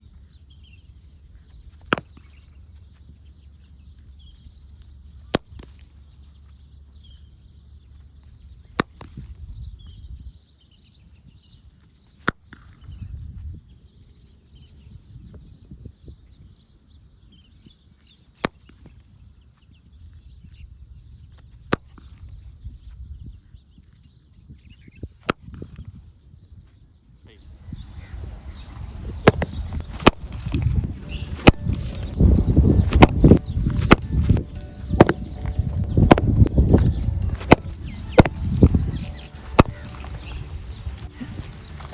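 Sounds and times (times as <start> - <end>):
birds chirping: 0.0 - 21.5, 25.9 - 41.9
cricket bat hitting ball: 8.8 - 9.2, 29.3 - 30.3, 31.1 - 38.8, 39.4 - 40.2.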